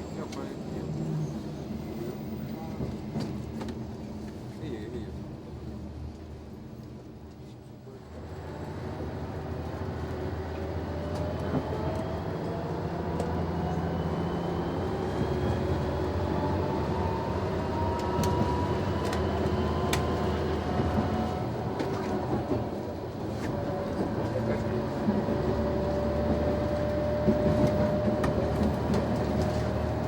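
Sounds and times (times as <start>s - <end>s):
diesel railcar engine accelerating: 0.0s - 30.0s.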